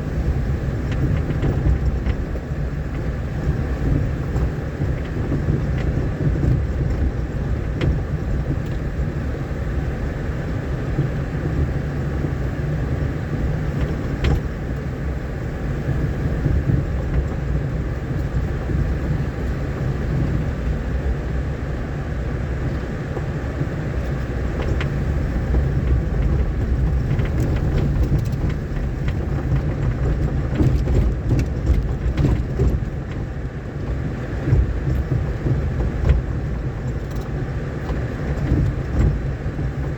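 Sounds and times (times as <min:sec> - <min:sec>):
vehicle engine and tyres rumbling: 0:00.0 - 0:39.9
knocks and rattles from bumps: 0:00.8 - 0:09.0, 0:13.7 - 0:14.8, 0:22.6 - 0:39.9.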